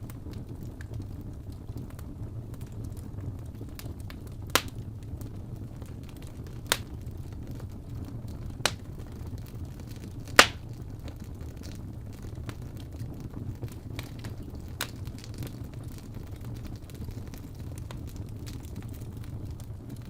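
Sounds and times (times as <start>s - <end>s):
wood fire crackling: 0.0s - 20.0s
sharp fire pops: 3.6s - 5.2s, 5.8s - 20.0s.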